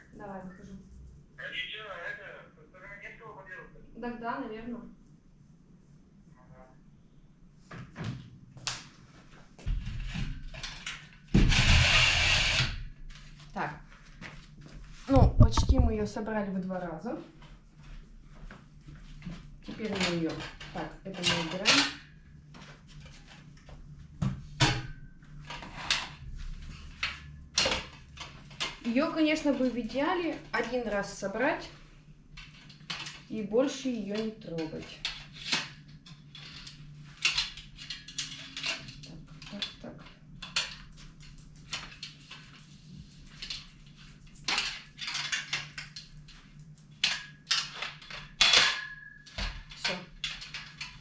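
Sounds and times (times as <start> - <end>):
metal rack rods clattering: 19.7 - 22.1, 47.0 - 51.0.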